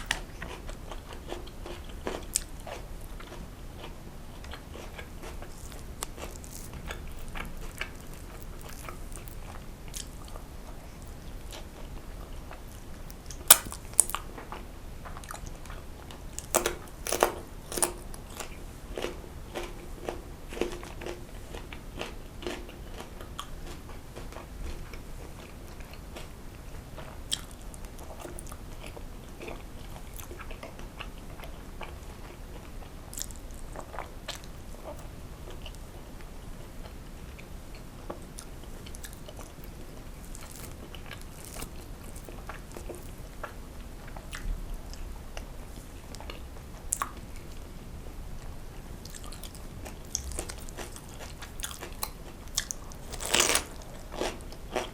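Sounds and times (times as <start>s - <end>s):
small crunches: 0.0s - 10.4s, 12.8s - 14.3s, 16.4s - 23.1s, 40.3s - 43.2s, 49.1s - 54.9s
person chewing food: 0.0s - 47.7s, 49.0s - 54.9s.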